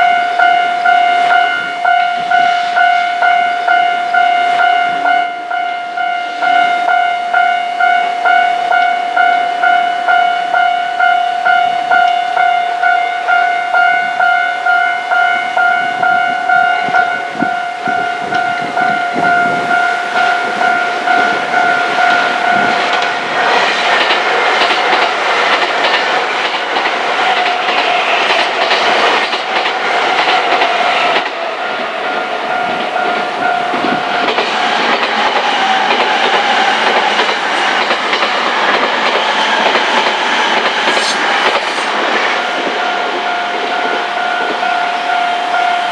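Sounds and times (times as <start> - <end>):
level-crossing warning bell: 0.0 - 45.9
train wheels clattering over rail joints: 17.3 - 45.9.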